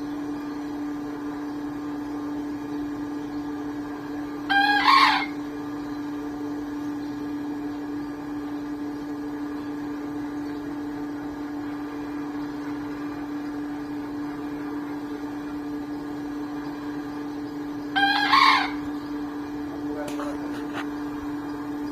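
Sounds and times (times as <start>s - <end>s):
steady mechanical hum: 0.0s - 21.9s
rooster crowing: 4.5s - 5.4s, 17.9s - 19.0s.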